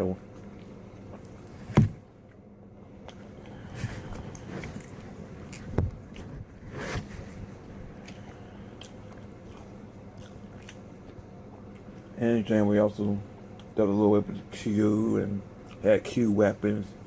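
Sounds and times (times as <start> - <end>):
person biting and chewing: 3.0 - 6.5, 7.9 - 12.0
wet mouth sounds: 3.1 - 6.4, 8.0 - 12.0
small crunches: 3.1 - 12.1.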